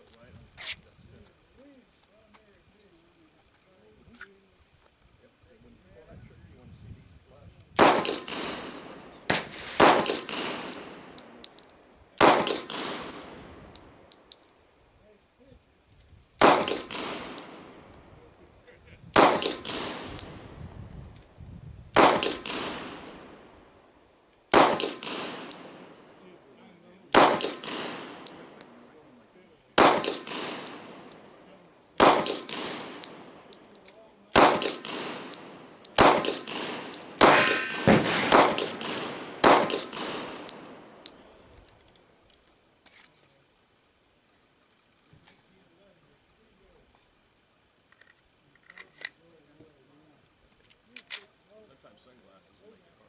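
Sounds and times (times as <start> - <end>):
pistol shots echoing: 7.8 - 14.5, 16.4 - 18.6, 19.2 - 20.7, 22.0 - 41.8.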